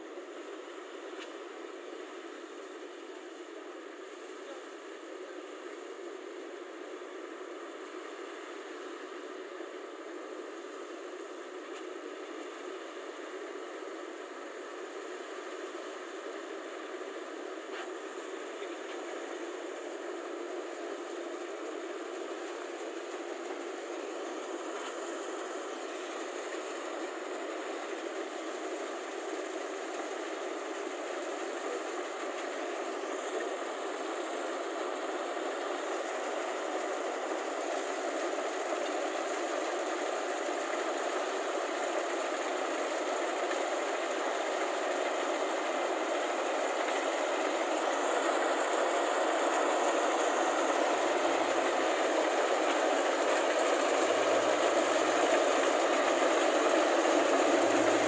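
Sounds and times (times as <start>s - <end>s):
combine harvester engine clatter: 16.4s - 58.0s.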